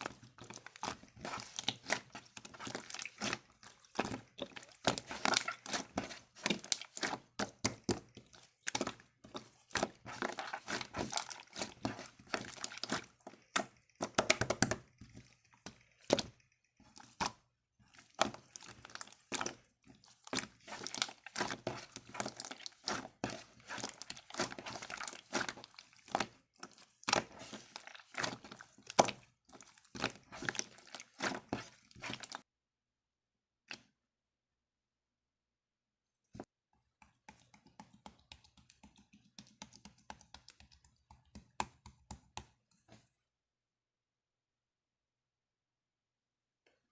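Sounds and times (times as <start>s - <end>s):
slime squished by hand: 0.0s - 32.4s.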